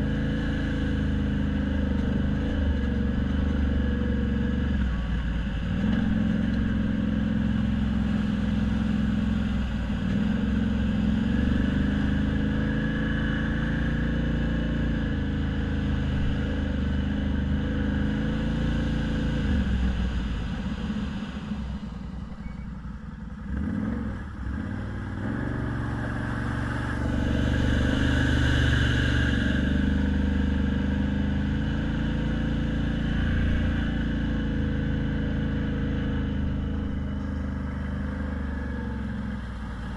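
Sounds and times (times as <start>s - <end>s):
car engine running: 15.0s - 39.9s.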